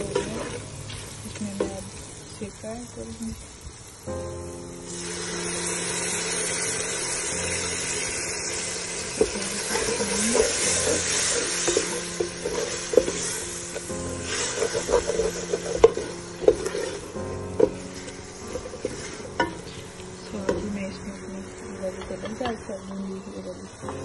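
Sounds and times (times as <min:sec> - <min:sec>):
chicken sizzling in a pot: 0:00.0 - 0:24.0
wooden spoon knocking on metal pot: 0:09.2 - 0:13.4, 0:14.5 - 0:17.8, 0:18.5 - 0:19.8, 0:20.4 - 0:20.8, 0:21.9 - 0:23.0.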